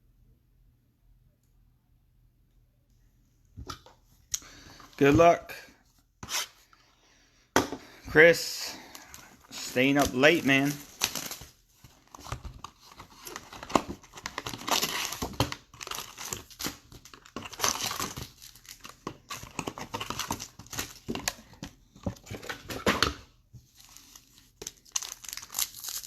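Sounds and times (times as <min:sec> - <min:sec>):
plastic wrapping crackling: 0:24.0 - 0:26.0.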